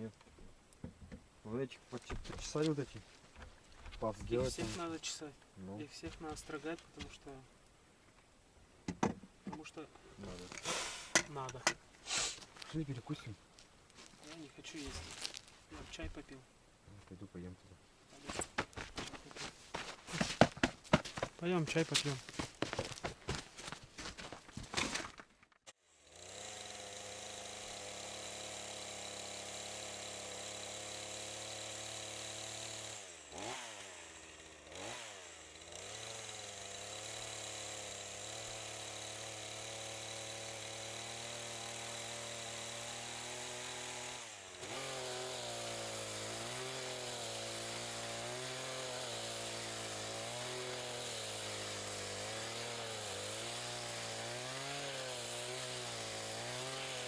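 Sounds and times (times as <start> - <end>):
chainsaw running at high revs: 25.8 - 57.0.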